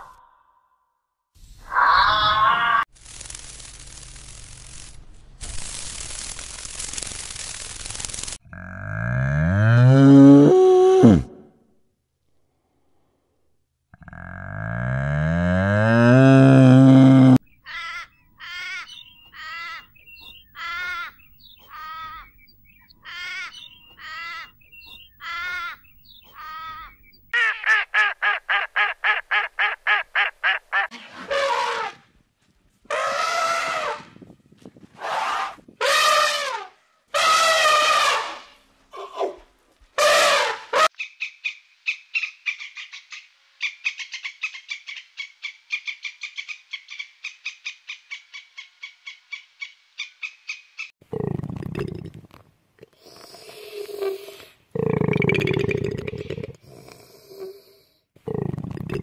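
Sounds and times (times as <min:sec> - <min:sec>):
elephant trumpeting: 0:32.9 - 0:34.0, 0:35.0 - 0:38.6.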